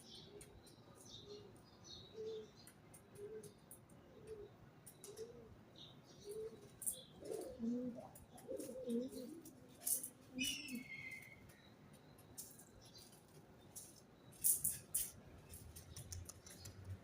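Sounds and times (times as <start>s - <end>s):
small birds chirping: 0.0s - 17.0s
pigeons cooing: 1.3s - 11.3s.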